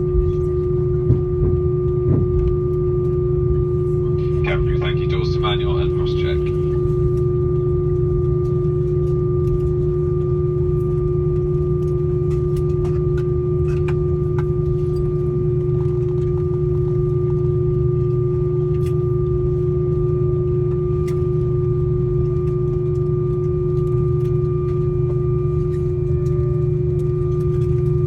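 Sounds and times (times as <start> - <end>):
aircraft cabin hum: 0.0 - 28.0
high faint whine: 3.7 - 8.6
air-conditioning air rush: 4.1 - 7.2.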